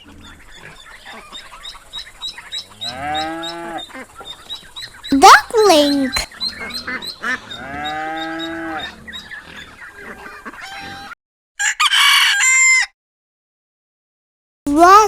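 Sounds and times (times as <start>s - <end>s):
long drawn-out animal call: 2.5s - 4.2s, 6.4s - 11.2s
rooster crowing: 11.6s - 12.9s.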